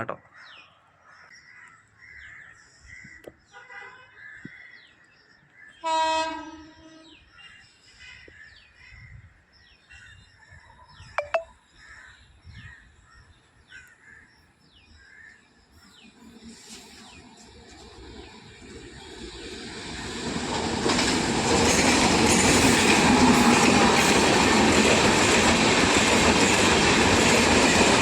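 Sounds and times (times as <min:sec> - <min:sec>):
locomotive horn: 0:05.8 - 0:07.1
faint high chirp: 0:11.0 - 0:11.6.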